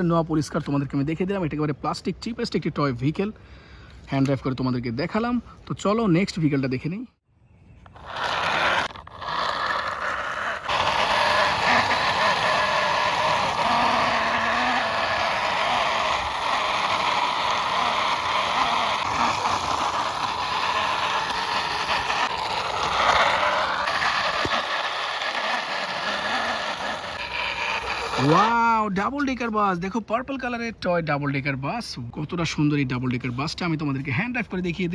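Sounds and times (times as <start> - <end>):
toy wheels rolling and scraping: 7.8 - 28.8.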